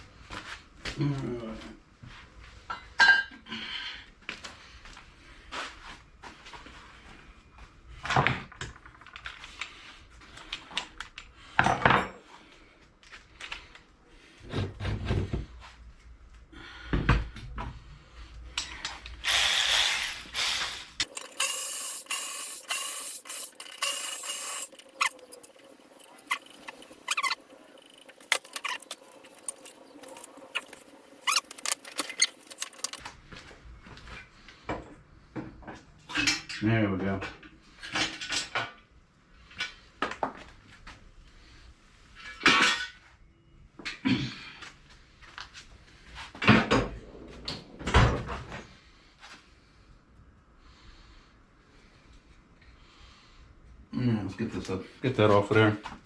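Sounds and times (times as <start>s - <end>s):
metal scraping: 21.0s - 33.0s.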